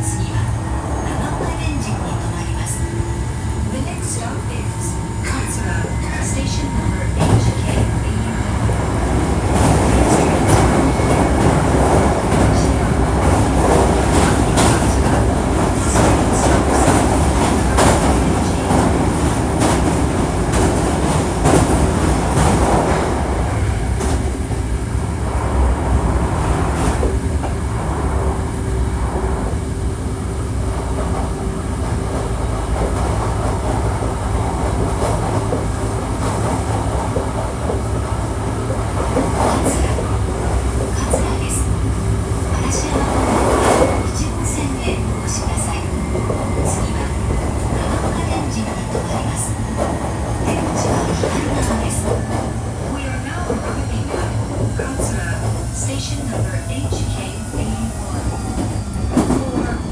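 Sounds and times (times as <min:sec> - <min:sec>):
train wheels rumbling on track: 0:00.0 - 0:59.9
rail-joint clicks: 0:05.2 - 0:24.4, 0:42.5 - 0:59.9.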